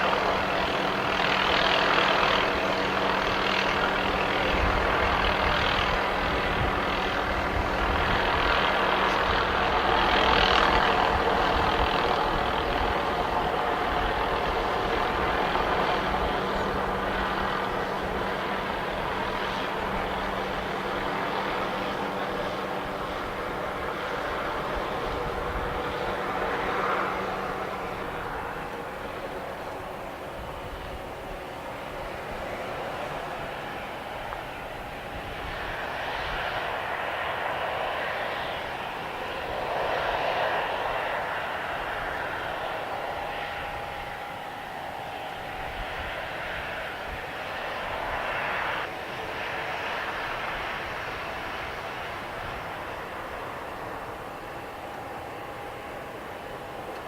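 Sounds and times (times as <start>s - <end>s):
jet engines rushing: 0.0s - 57.0s
low steady engine tones: 0.0s - 57.0s.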